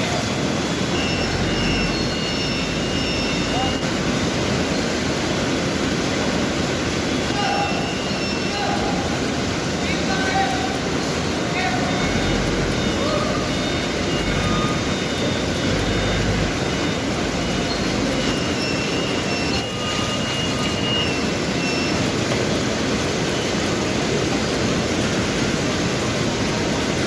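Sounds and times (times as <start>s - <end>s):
faint short high tones: 0.9s - 3.9s
paper bag machine running: 10.7s - 27.0s.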